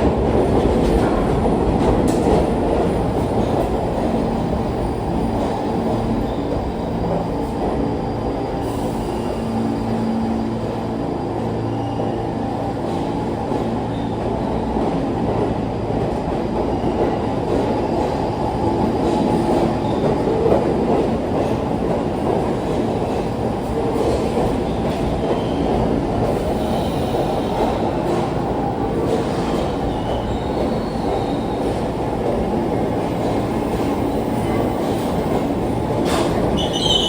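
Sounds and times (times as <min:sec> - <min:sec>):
subway train rumbling on rails: 0:00.0 - 0:37.0
faint wheel squeals: 0:36.6 - 0:37.0.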